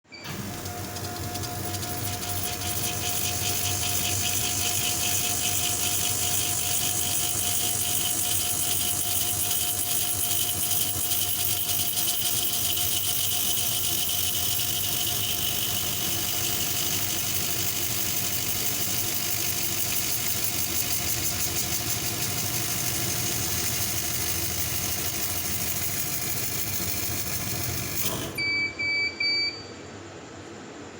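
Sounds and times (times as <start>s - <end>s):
laser cutter fans hissing: 0.5s - 9.4s
short beeps: 28.4s - 29.8s.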